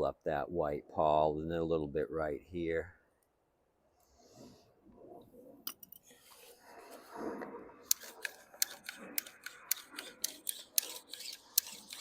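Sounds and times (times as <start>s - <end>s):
recoil starter clicking: 7.9s - 12.0s.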